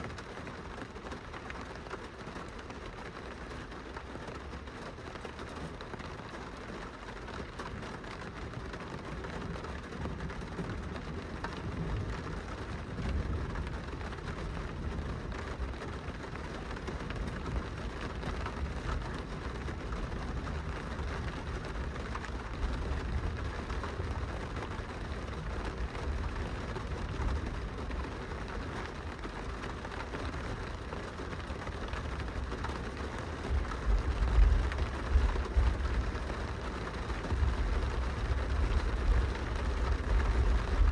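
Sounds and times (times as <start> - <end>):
rain pattering on a window: 0.0 - 40.9.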